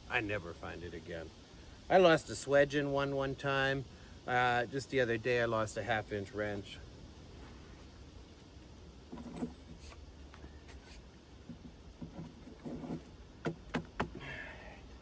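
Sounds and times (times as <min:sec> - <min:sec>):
scraping: 0:09.1 - 0:13.2.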